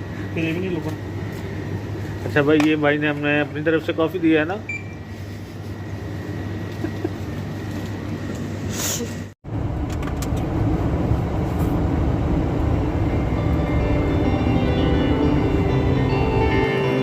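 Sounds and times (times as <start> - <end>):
steady low hum: 0.0 - 17.0
truck engine rumble: 9.5 - 16.6.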